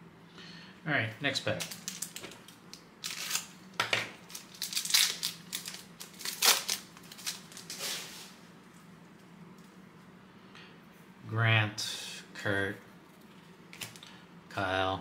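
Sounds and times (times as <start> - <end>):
wrapper tearing and crinkling: 1.6 - 3.6, 4.2 - 8.1.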